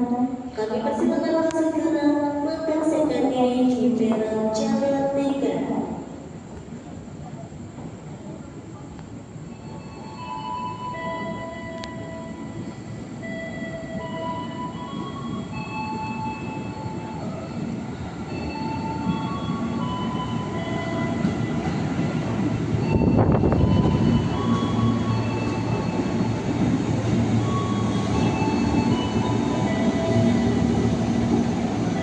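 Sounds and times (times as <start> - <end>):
train rumble: 0.0 - 32.0
train wheels squealing on rails: 9.4 - 32.0.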